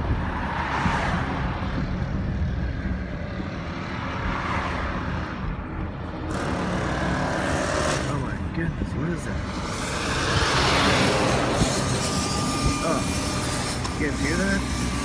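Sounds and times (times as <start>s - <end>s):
rushing noise: 9.2s - 15.0s.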